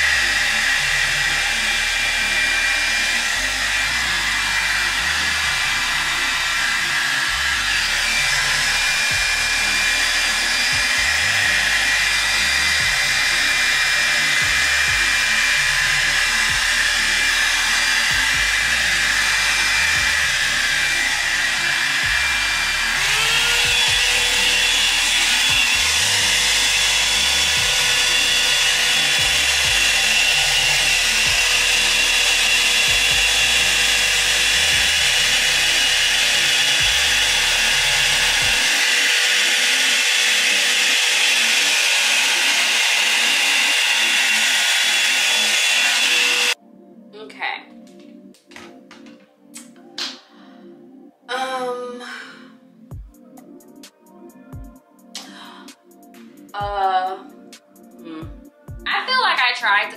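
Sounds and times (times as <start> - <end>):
blow dryer brush running: 0.0 - 46.6.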